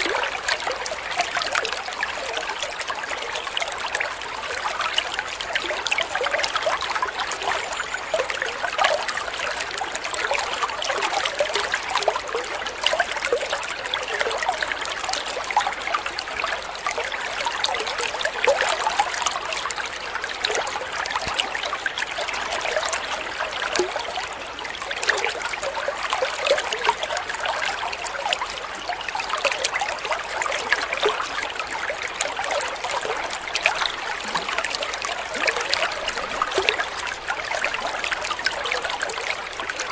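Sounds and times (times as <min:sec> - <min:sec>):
water babbling over stones: 0:00.0 - 0:39.9.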